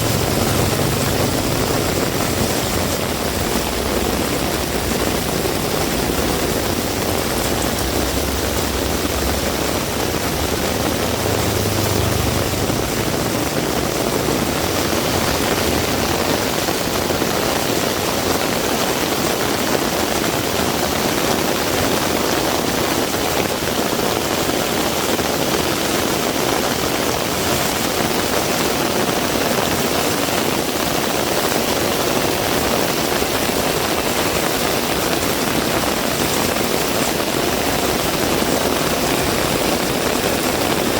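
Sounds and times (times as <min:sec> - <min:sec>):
vehicle engine rumble: 0:00.0 - 0:18.4
heavy rain falling: 0:00.0 - 0:40.9.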